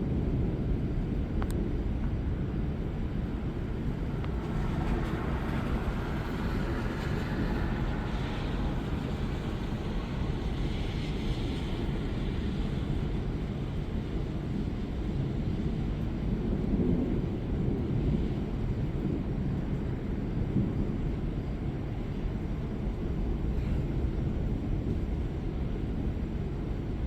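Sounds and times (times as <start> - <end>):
low thunder rumble: 0.0 - 27.0
rain hiss: 3.4 - 14.7.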